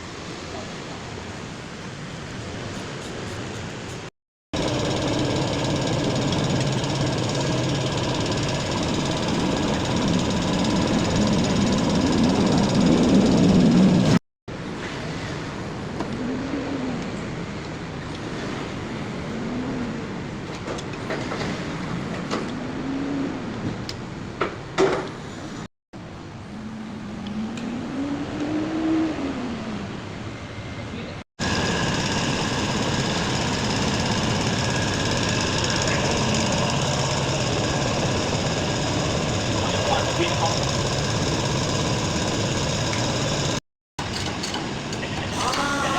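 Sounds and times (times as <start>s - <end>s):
engine revving: 4.6s - 14.2s, 31.4s - 43.6s.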